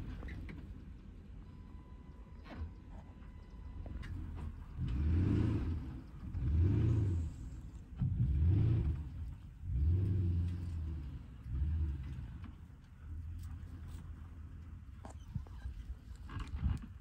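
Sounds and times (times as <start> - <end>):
car engine revving: 4.4 - 12.6.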